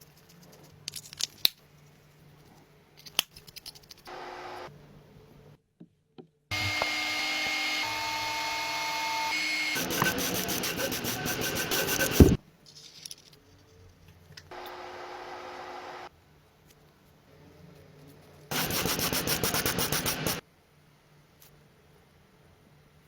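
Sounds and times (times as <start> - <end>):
power tool whirring: 4.1 - 4.7, 6.5 - 12.4, 18.5 - 20.4
fast rasping strokes: 6.5 - 12.4, 18.5 - 20.4
rubbing: 9.8 - 12.4.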